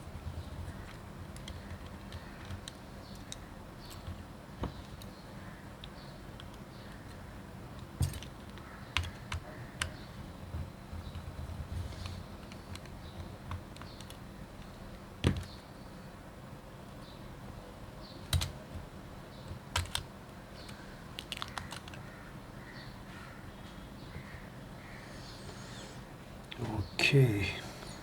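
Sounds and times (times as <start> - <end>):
small tools clicking and tapping: 7.8 - 9.9.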